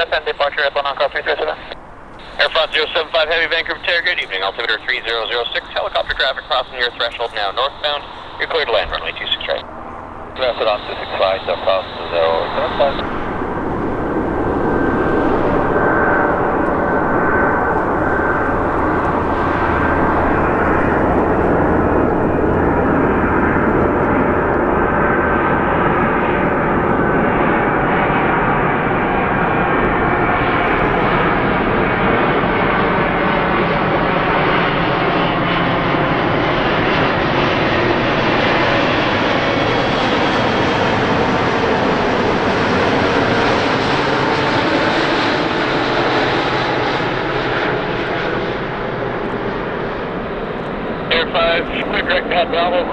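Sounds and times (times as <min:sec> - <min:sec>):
jet engines roaring: 0:00.0 - 0:52.9.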